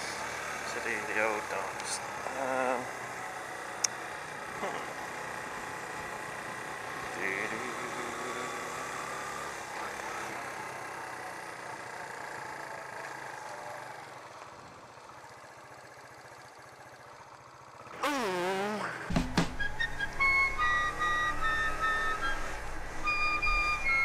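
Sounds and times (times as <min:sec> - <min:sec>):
motorcycle engine running: 0:00.0 - 0:24.0
music: 0:19.1 - 0:24.0
loud wavering tone: 0:19.6 - 0:24.0.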